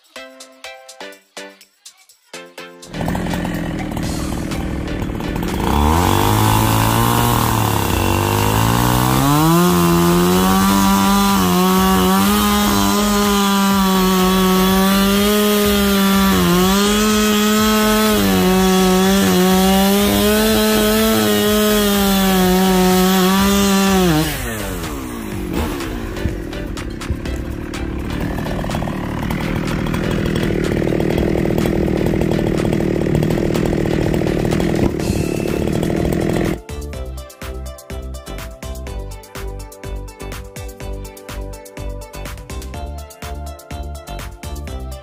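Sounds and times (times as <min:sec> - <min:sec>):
chainsaw engine revving: 0:02.9 - 0:36.9.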